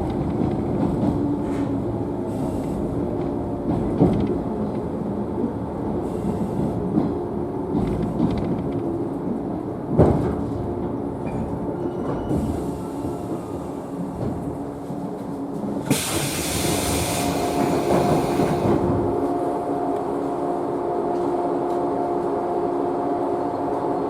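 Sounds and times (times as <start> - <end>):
train equipment hum: 0.0 - 24.0
compressed-air hiss: 15.9 - 18.7.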